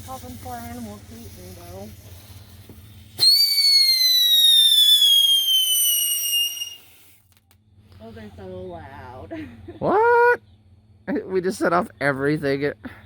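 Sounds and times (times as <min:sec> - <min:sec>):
whistling firework: 0:00.0 - 0:07.6.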